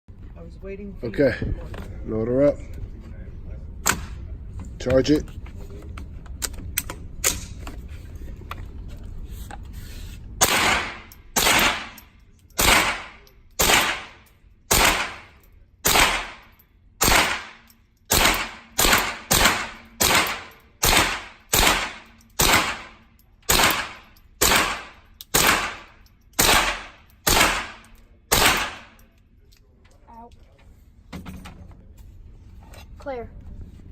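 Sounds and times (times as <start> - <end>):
gunshots with echo: 10.4 - 12.0, 12.6 - 15.3, 15.9 - 29.0
gun handling clicks: 23.4 - 29.7.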